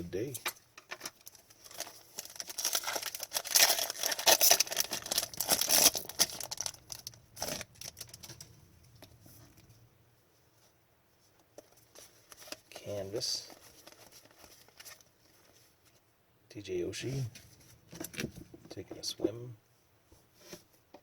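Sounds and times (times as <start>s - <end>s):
cards and wrapper crinkling: 0.9s - 9.2s, 11.6s - 15.6s.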